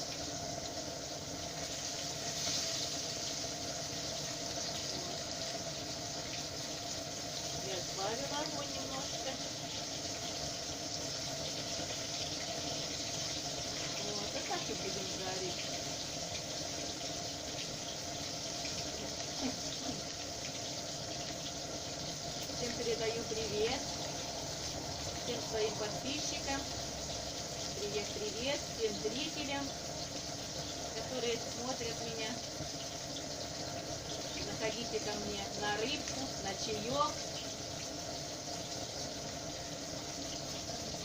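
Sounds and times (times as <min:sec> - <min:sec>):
fish frying in oil: 0:00.0 - 0:41.0.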